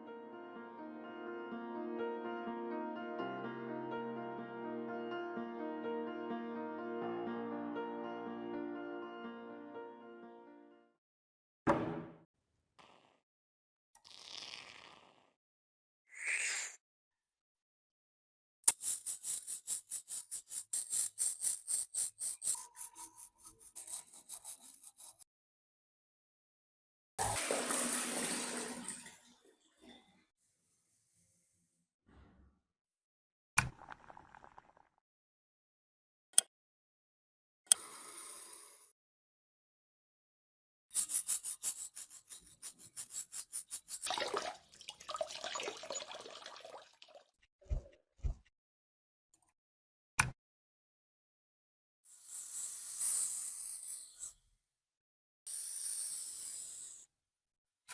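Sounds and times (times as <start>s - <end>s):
water running from tap: 27.2s - 29.3s, 43.9s - 47.3s
hand rubbing on metal part: 41.0s - 44.0s.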